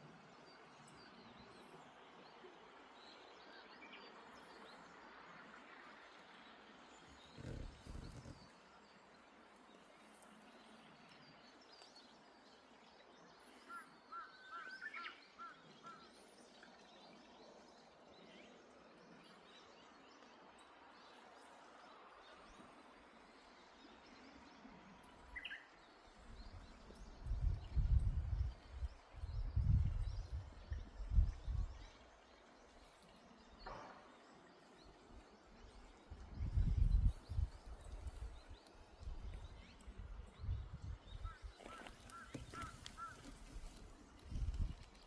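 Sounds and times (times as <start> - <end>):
birds chirping: 7.0 - 8.6, 34.7 - 45.0.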